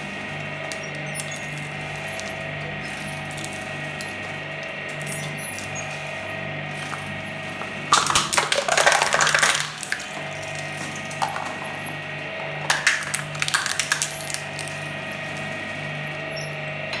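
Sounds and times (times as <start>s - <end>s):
electric shredder humming: 0.0s - 17.0s
candy cracking and clinking: 7.9s - 11.9s, 12.5s - 16.2s.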